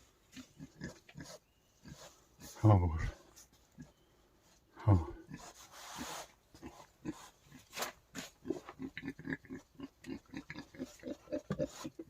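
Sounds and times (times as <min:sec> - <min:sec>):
wild boar grunting: 0:04.8 - 0:12.0.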